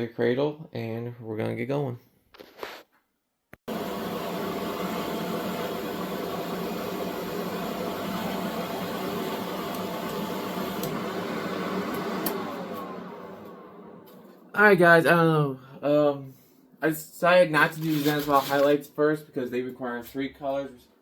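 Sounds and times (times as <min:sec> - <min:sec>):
electric blower fan humming: 0:03.7 - 0:15.6.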